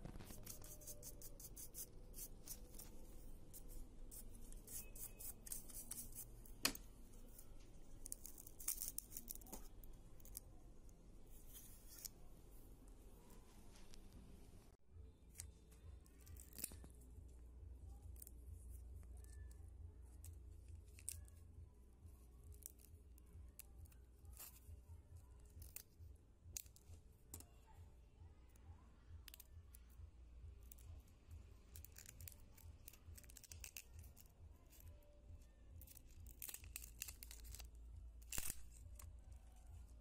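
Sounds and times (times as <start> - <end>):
tweezers scratching and clicking on glass: 0.1 - 10.5, 31.6 - 35.0, 35.8 - 39.7.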